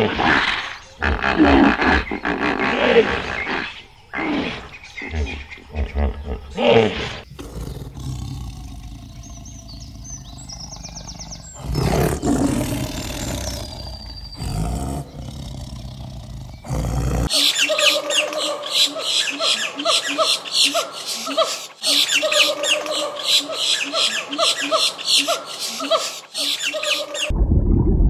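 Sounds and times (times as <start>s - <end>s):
faint bird chirps: 3.2s - 27.3s
hippos grunting: 6.2s - 17.3s
tigers growling: 6.2s - 17.3s.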